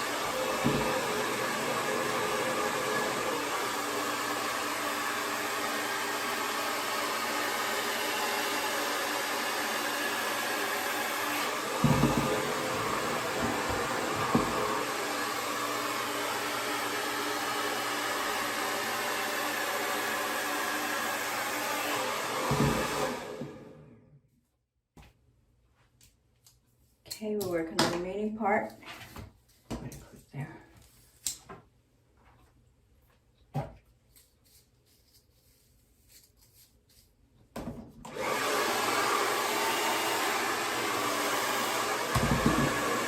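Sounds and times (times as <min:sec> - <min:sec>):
hair dryer running: 0:00.0 - 0:24.0, 0:38.0 - 0:43.0.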